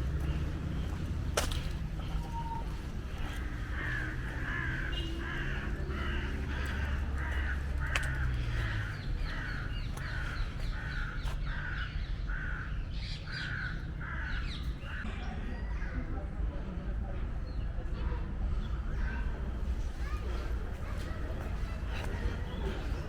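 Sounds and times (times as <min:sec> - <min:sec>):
bird harsh cawing calls: 0:00.0 - 0:15.1.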